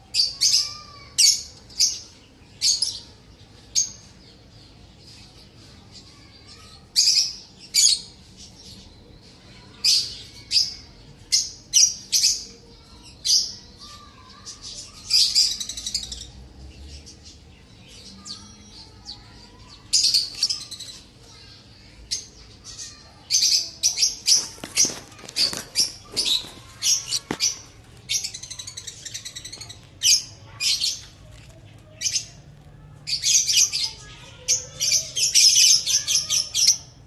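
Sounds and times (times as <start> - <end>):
lovebirds chirping: 16.9 - 32.4.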